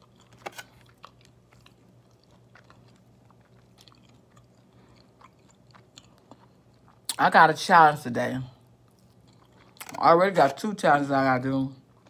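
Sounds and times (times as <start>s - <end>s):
soft chewing: 0.0s - 7.2s, 8.5s - 10.6s.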